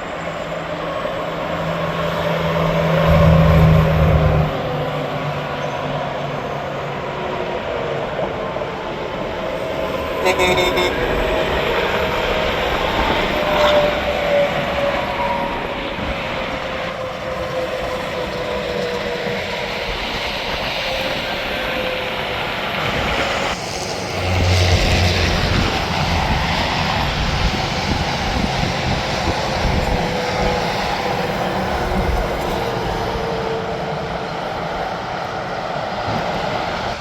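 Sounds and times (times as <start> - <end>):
highway traffic passing: 0.1 - 19.6, 21.1 - 37.0
heavy truck passing: 0.6 - 6.4, 22.9 - 33.9.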